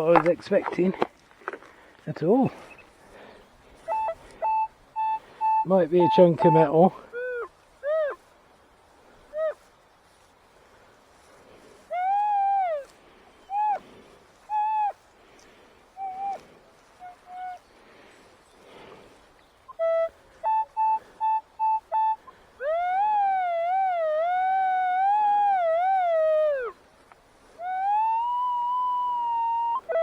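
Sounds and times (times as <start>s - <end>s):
metal detector tones: 3.9s - 6.9s.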